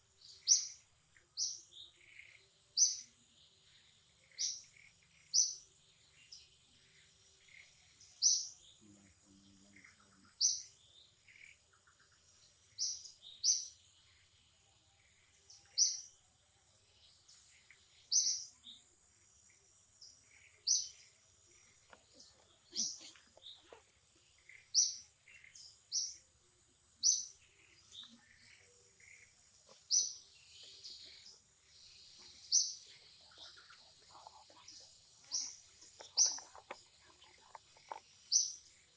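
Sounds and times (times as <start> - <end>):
bird chirping: 0.0 - 38.9.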